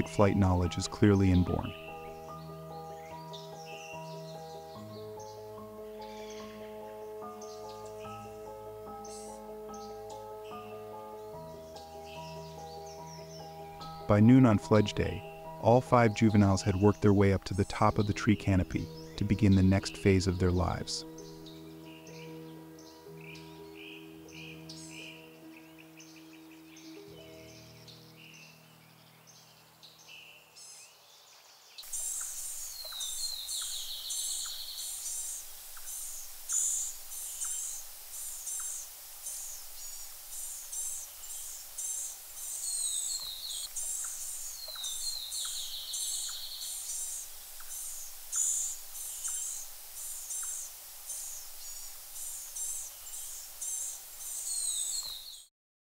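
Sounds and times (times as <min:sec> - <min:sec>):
music: 0:00.0 - 0:29.5
outdoor background hiss: 0:00.0 - 0:55.5
high thin bird calls: 0:31.8 - 0:55.5
buzzy falling bird trill: 0:31.9 - 0:55.5.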